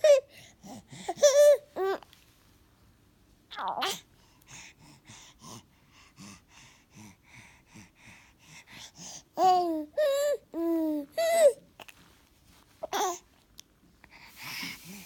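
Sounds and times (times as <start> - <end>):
baby breathy huffs: 3.9 - 10.3, 14.0 - 15.0.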